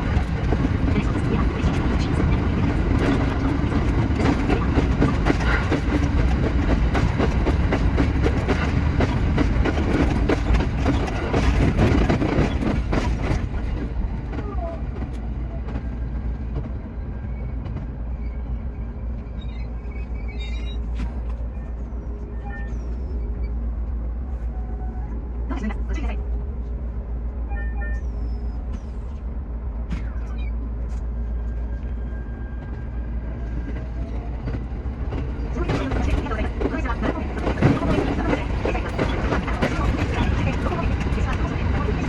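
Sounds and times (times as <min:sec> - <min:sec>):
train rumbling: 0:00.0 - 0:42.0
faint whining tones: 0:16.9 - 0:34.7.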